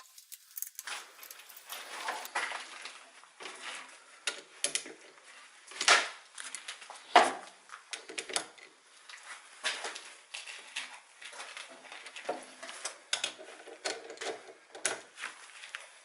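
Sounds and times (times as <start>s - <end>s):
metallic clinks and clanks: 0.0s - 2.3s.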